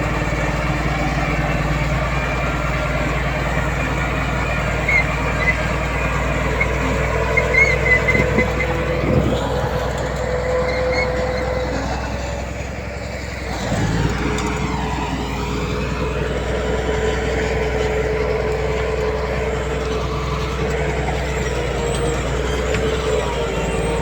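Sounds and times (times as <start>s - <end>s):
heavy diesel machinery running: 0.0s - 24.0s
steady whine: 5.8s - 12.6s.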